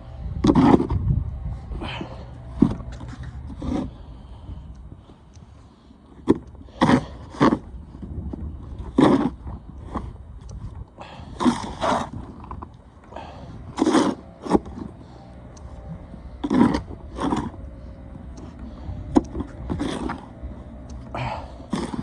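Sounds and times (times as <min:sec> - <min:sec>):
snow shovel scraping snow: 0:00.4 - 0:01.0, 0:01.8 - 0:04.2, 0:06.6 - 0:07.6, 0:08.8 - 0:10.1, 0:11.3 - 0:12.2, 0:13.2 - 0:15.2, 0:16.2 - 0:22.0.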